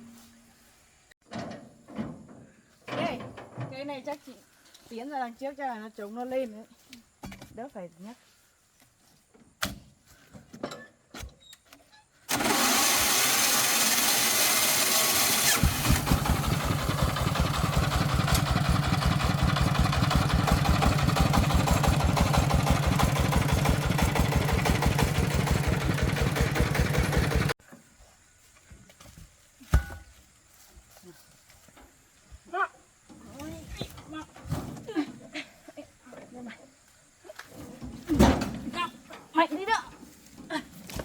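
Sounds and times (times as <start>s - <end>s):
diesel engine cranking: 12.2s - 27.6s
diesel engine chugging: 15.2s - 27.6s.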